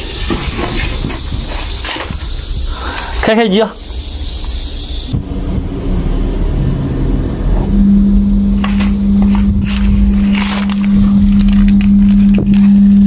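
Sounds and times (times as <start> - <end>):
air conditioner humming: 0.0 - 13.0
low rumble: 3.8 - 13.0.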